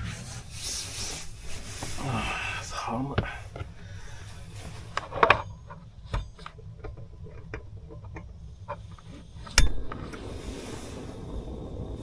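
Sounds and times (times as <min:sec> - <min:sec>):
steady rushing noise: 0:09.1 - 0:12.0.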